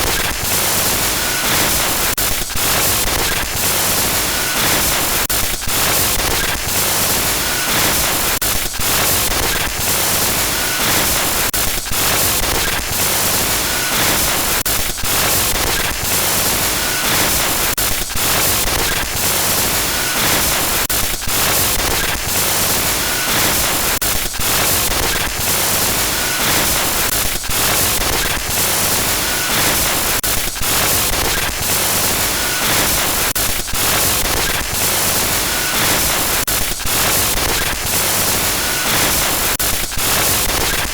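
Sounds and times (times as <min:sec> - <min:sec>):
harsh static glitch noise: 0:00.0 - 0:40.9.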